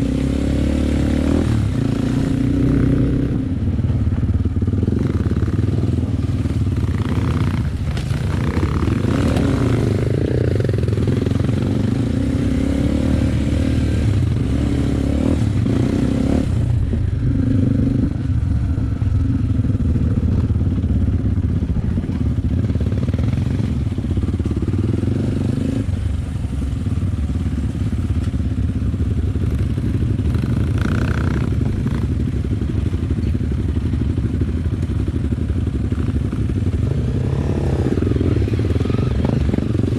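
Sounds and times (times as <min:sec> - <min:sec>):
motorcycle engine revving: 0:00.0 - 0:39.9
motorcycle knocks and rattles: 0:03.8 - 0:11.4.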